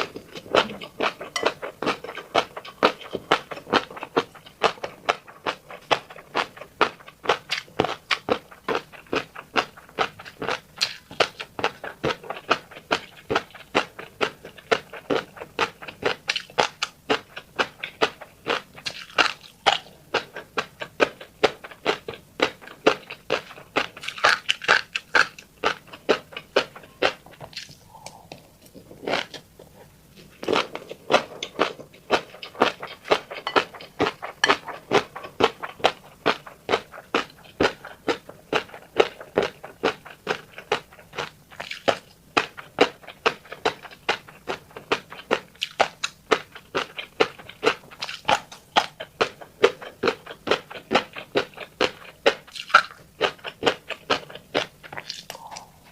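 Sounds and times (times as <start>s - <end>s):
person chewing with clicks: 0.0s - 55.9s.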